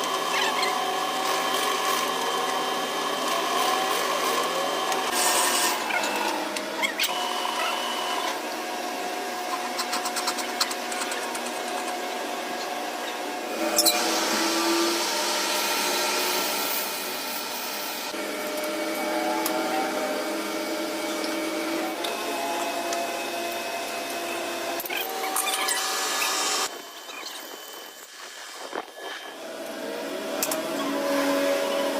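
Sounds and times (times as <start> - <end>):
power tool whine: 11.8 - 31.9.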